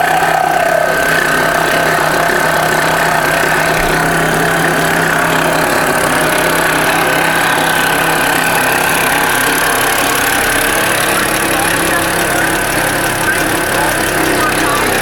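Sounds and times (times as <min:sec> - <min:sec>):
constant whine: 0:00.0 - 0:15.0
vehicle engine running: 0:00.0 - 0:15.0.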